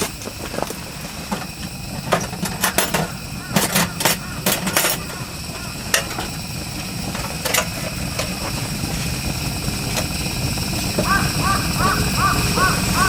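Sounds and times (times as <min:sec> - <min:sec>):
low engine-like rumble: 0:00.0 - 0:13.0
crows cawing: 0:03.0 - 0:06.4, 0:11.0 - 0:13.0.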